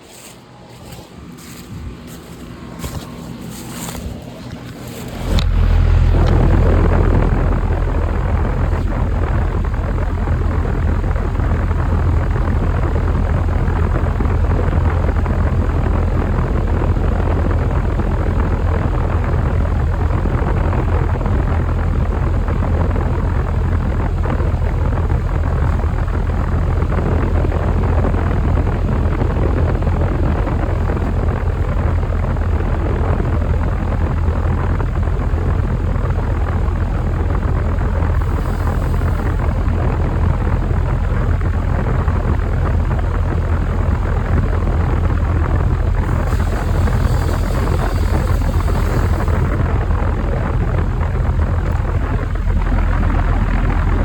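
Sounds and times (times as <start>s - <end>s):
air conditioner hum and fan: 0.0s - 54.0s.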